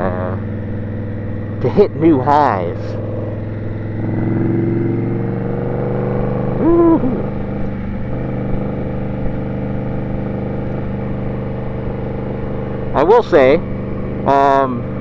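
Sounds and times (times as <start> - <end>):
motorcycle engine running: 0.0 - 15.0
short pitched sound: 6.6 - 7.3.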